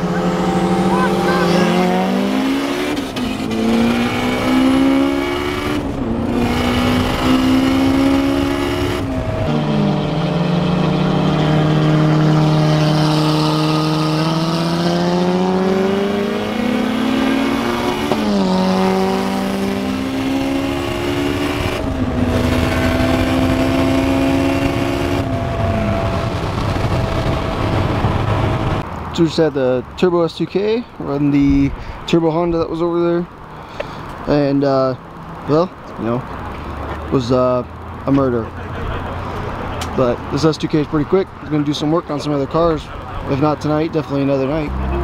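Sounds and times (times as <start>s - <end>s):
car engine accelerating through gears: 0.0s - 28.9s.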